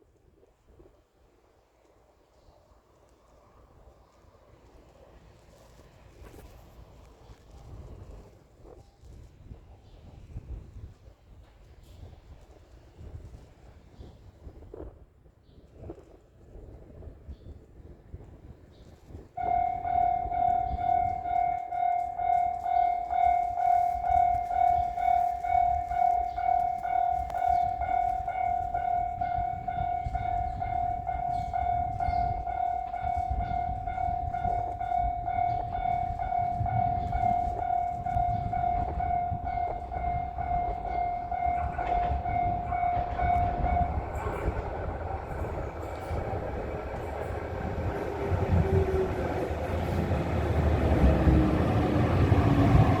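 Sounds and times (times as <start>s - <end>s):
train rumble: 15.8s - 53.0s
steady high tone: 19.4s - 53.0s
train brakes whining: 19.4s - 53.0s.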